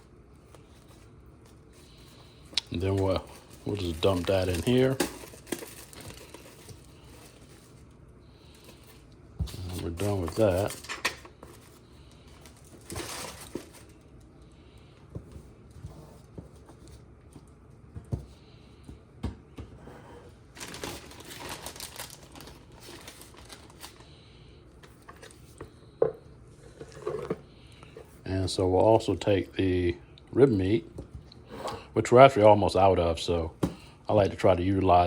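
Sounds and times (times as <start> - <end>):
rustling and crinkling: 0.4 - 14.4, 20.5 - 24.1.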